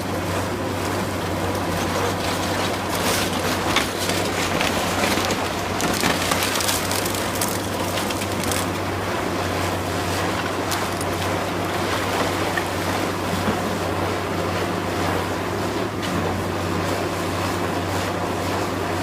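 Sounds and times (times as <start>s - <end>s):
heavy machine engine running: 0.0s - 19.0s
wood debris cracking and splintering: 1.5s - 13.7s.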